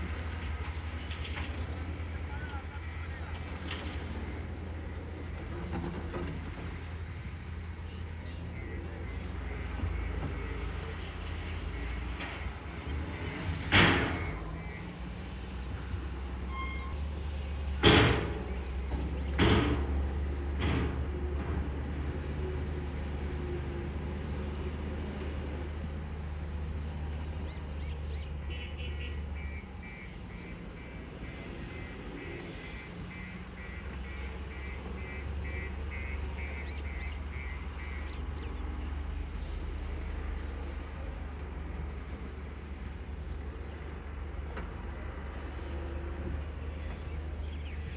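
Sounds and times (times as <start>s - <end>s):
heavy machinery engine running: 0.0s - 28.4s, 29.2s - 47.9s
birds chirping: 7.8s - 17.2s, 26.8s - 47.9s.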